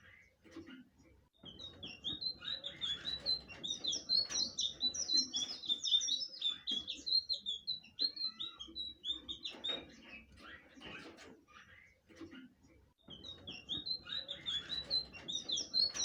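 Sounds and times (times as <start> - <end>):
bird singing high chirps: 1.4 - 10.7, 13.0 - 16.0.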